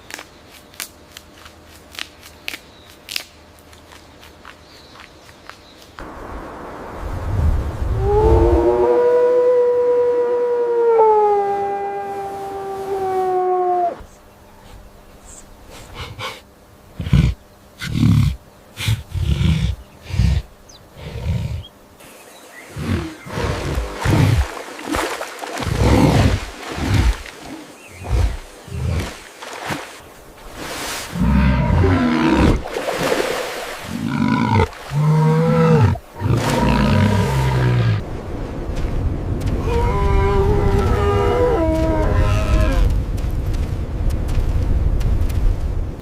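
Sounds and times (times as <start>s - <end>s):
big cat roaring: 31.1s - 32.7s, 33.9s - 38.0s.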